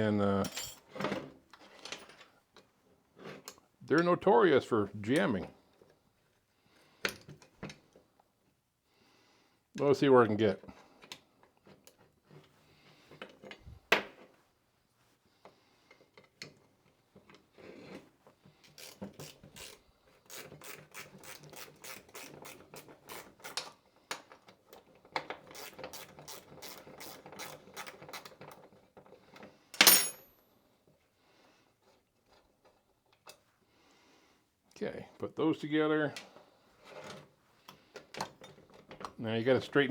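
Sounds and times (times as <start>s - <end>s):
sharp metal clank: 29.8s - 30.2s.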